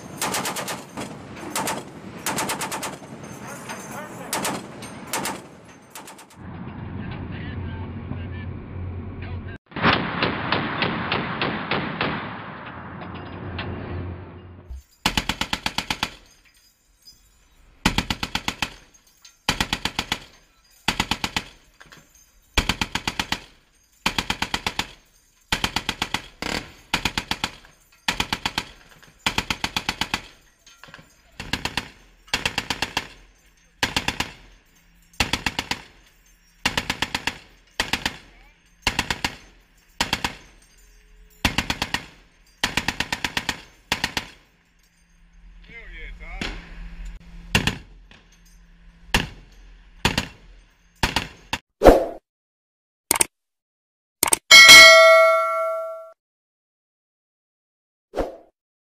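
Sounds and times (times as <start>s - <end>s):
heavy machine gun firing bursts: 0.2s - 3.1s, 4.3s - 6.4s.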